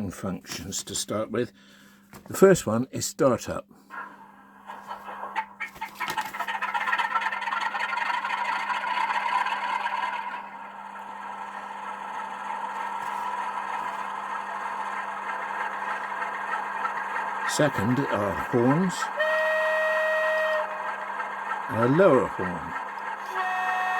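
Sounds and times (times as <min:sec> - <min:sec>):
diesel engine sound from small speaker: 0:08.4 - 0:23.9.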